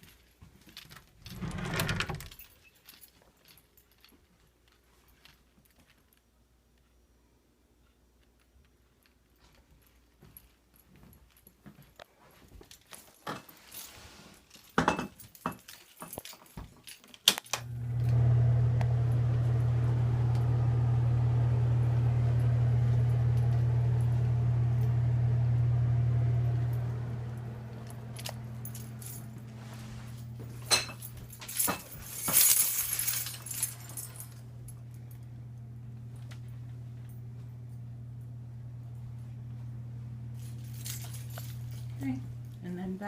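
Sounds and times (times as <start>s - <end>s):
handling clicks and clinks: 0.0s - 7.0s, 7.8s - 17.7s, 26.8s - 37.4s, 40.4s - 43.0s
electric motor hum: 1.3s - 2.3s, 17.6s - 30.7s, 34.2s - 42.6s
jangle: 1.3s - 6.2s, 12.7s - 17.2s, 27.8s - 35.2s, 40.4s - 42.6s.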